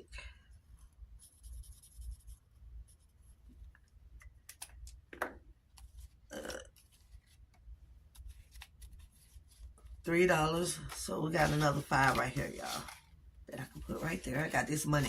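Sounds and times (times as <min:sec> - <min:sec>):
paper rustling: 0:06.8 - 0:15.0.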